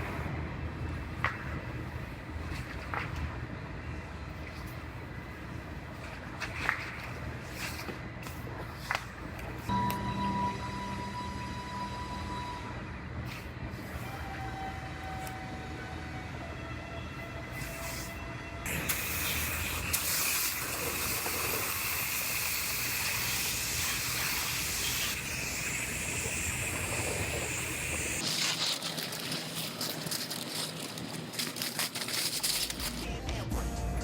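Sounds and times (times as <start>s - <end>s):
spray hissing: 17.6s - 28.2s.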